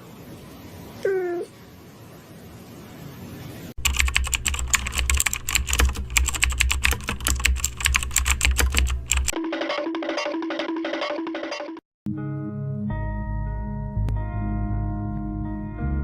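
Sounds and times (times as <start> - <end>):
rapid keyboard typing: 3.8 - 11.8.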